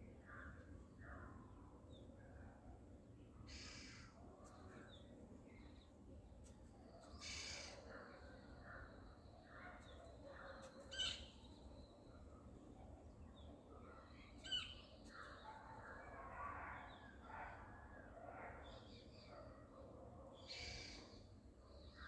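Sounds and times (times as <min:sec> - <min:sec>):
faint bird calls: 0:03.4 - 0:05.9, 0:06.8 - 0:12.3, 0:20.3 - 0:21.3.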